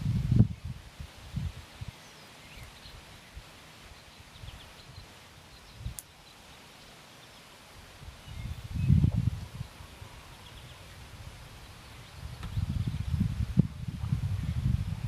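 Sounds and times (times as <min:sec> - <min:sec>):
wind buffeting microphone: 0:00.0 - 0:02.0, 0:08.0 - 0:15.0
steady low hiss: 0:00.0 - 0:15.0
faint bird chirps: 0:01.8 - 0:07.6, 0:08.2 - 0:13.2.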